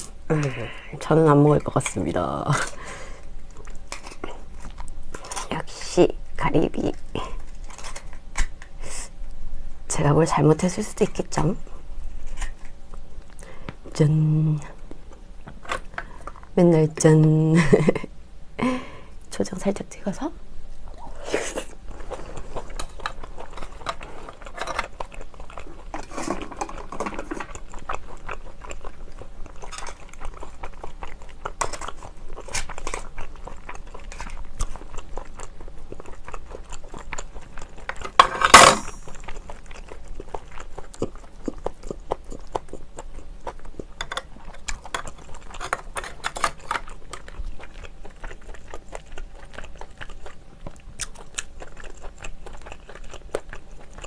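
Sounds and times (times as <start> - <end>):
chewing with wet mouth noises: 0.0 - 9.4, 20.7 - 54.0.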